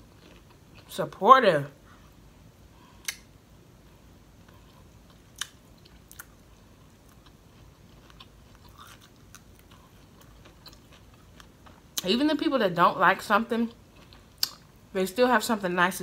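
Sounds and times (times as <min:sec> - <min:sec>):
chewing crispy fried food: 0:00.0 - 0:01.0, 0:03.8 - 0:12.1, 0:13.7 - 0:14.8.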